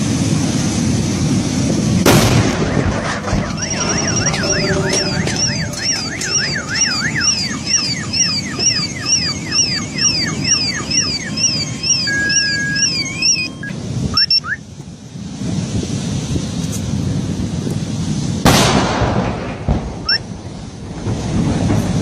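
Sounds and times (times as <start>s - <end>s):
electronic alarm siren wailing: 3.3s - 14.6s.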